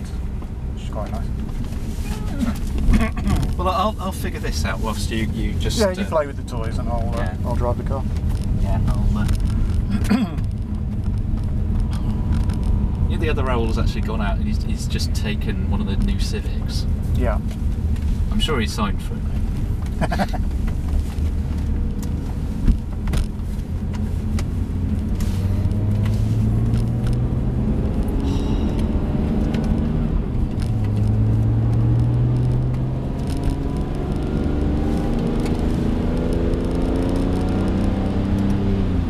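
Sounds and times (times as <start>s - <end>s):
car engine pulling hard: 0.0s - 39.0s
road rumble: 0.0s - 39.0s.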